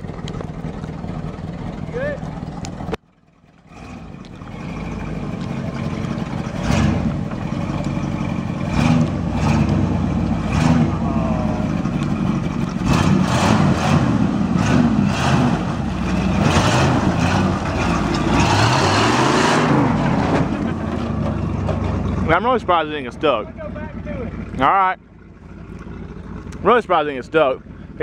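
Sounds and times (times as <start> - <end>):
truck engine revving: 3.6 - 28.0.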